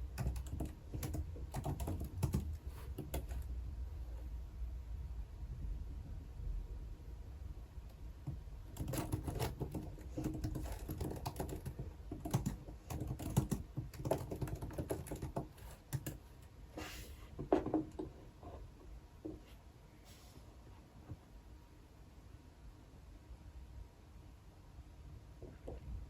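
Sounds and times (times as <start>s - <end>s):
typing on computer keyboard: 0.0s - 3.5s, 8.6s - 16.4s.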